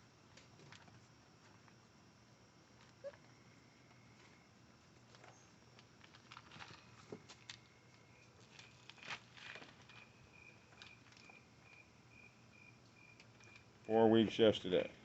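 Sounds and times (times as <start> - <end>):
faint rustling: 2.6 - 11.9.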